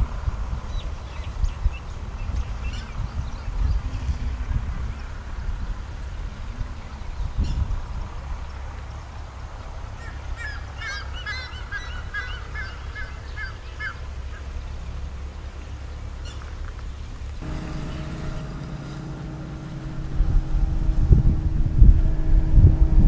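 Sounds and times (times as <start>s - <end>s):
low outdoor rumble: 14.0s - 23.0s
diesel locomotive droning: 17.4s - 23.0s.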